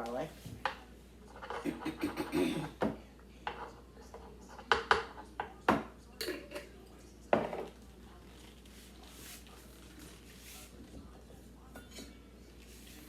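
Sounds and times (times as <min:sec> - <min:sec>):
kitchen utensils clinking: 0:01.2 - 0:05.6, 0:06.2 - 0:07.8, 0:11.6 - 0:12.3.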